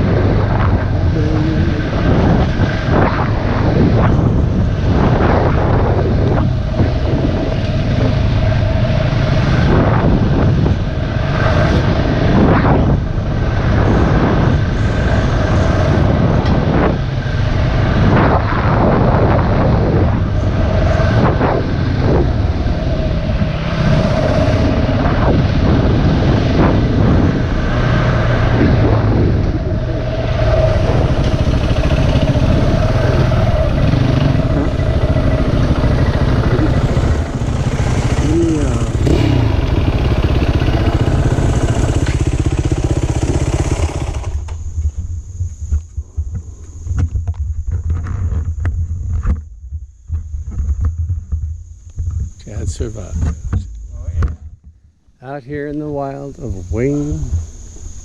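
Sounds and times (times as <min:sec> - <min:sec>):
dirt bike engine revving: 0:00.0 - 0:44.8.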